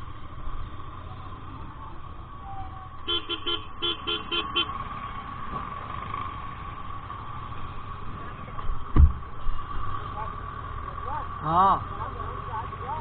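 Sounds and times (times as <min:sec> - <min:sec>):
low road rumble: 0:00.0 - 0:13.0
vehicle horn beeps: 0:03.0 - 0:04.8.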